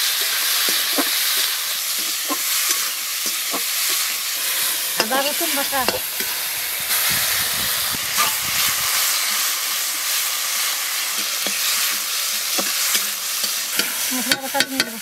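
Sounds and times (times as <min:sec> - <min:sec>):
onions sizzling in oil: 0:00.0 - 0:15.0
spatula scraping pan: 0:08.2 - 0:09.6, 0:11.0 - 0:15.0.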